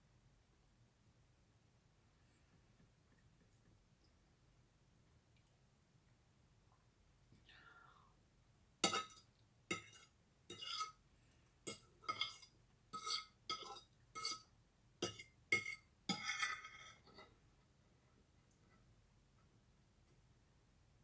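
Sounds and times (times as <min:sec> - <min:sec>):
cutlery clinking on a plate: 0:08.8 - 0:11.0, 0:11.7 - 0:17.3.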